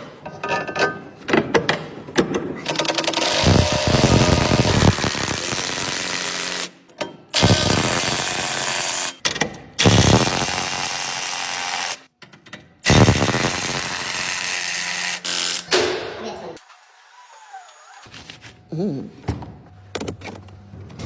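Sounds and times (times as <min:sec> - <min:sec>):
loud mechanical running noise: 0:03.2 - 0:06.0, 0:07.4 - 0:08.7, 0:12.9 - 0:14.0.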